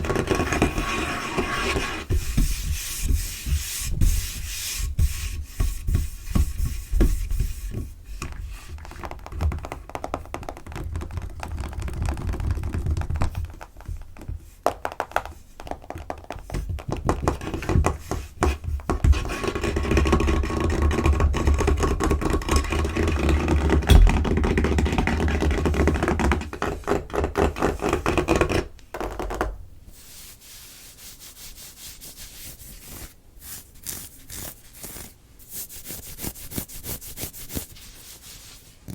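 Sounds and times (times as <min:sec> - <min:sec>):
fingers tapping and scratching tabletop: 0:00.0 - 0:29.6
dull thumps: 0:23.9 - 0:24.7.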